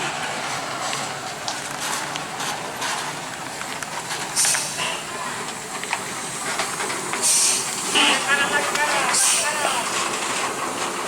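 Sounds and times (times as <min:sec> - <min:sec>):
burst of hiss: 0:04.3 - 0:10.0
background voices: 0:04.7 - 0:10.3.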